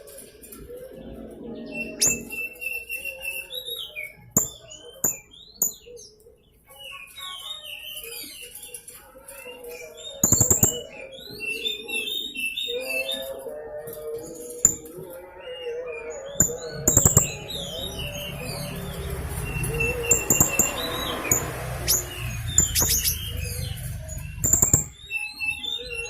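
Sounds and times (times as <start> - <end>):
parrot chirping and clicking: 10.2 - 10.8, 20.0 - 23.2, 24.4 - 25.0.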